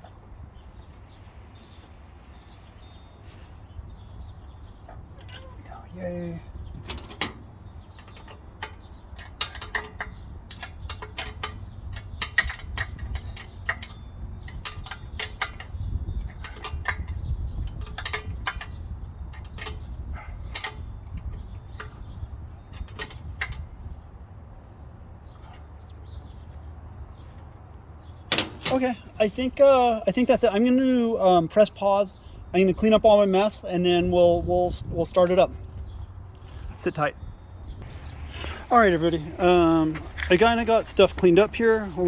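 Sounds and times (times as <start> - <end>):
hand tools clicking and knocking: 4.8 - 5.9, 6.7 - 23.7, 28.3 - 29.1.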